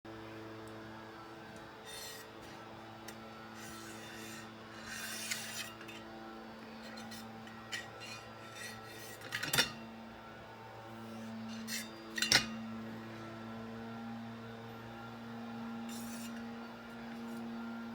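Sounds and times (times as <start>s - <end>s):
film rubbing and scraping: 1.4s - 9.8s, 10.9s - 12.6s, 15.9s - 17.4s.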